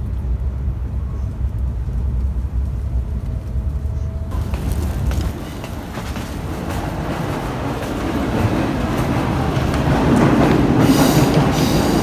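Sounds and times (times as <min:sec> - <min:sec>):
train rumbling past: 0:00.0 - 0:12.0
hiss: 0:10.6 - 0:12.0.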